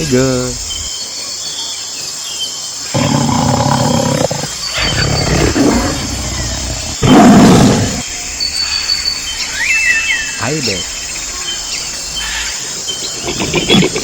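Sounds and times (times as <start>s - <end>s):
tiger growling and roaring: 2.9s - 8.1s.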